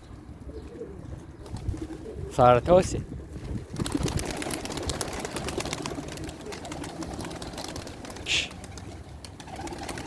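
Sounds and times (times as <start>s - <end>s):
pigeons cooing: 0.2s - 2.4s, 3.2s - 10.0s.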